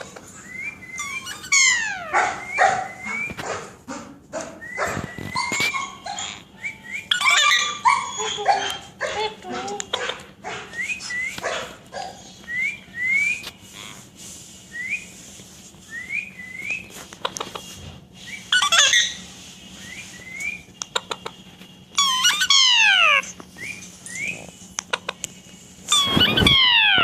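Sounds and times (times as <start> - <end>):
parrot rising chirps: 0.6 - 3.3, 5.3 - 8.2, 18.3 - 19.3, 22.0 - 24.4, 25.9 - 27.0
parrot loud falling call: 26.0 - 27.0.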